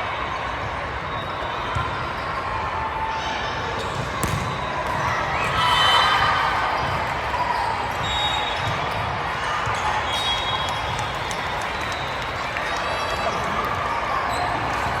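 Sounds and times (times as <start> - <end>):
crowd chatter: 0.0 - 15.0
volleyball hits: 3.8 - 11.6.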